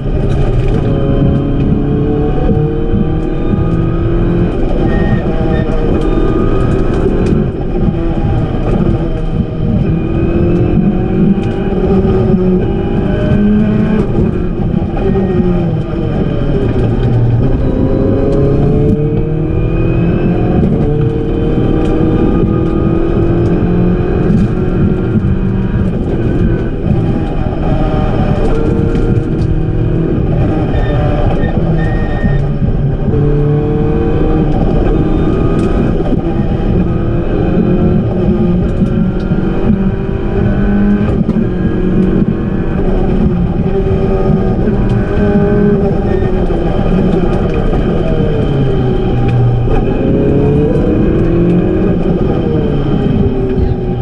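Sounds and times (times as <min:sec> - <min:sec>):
car engine revving: 0:00.0 - 0:54.0
tyre and road noise: 0:00.0 - 0:54.0.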